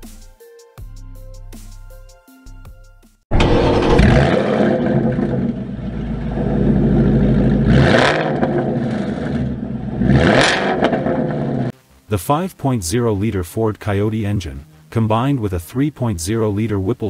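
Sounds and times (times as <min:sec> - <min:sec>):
car engine running and revving: 0:03.4 - 0:11.8.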